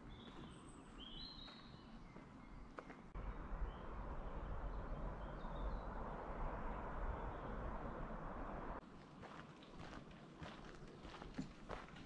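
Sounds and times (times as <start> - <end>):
small birds chirping: 0.0 - 6.3.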